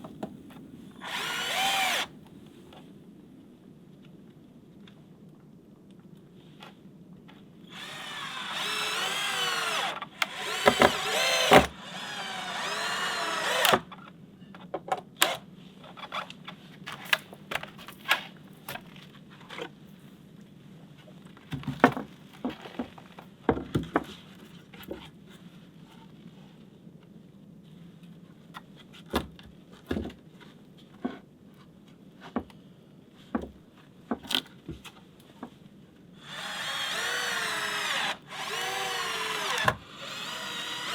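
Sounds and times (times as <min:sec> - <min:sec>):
power drill running: 0:01.0 - 0:02.2, 0:07.7 - 0:13.9, 0:36.2 - 0:40.9.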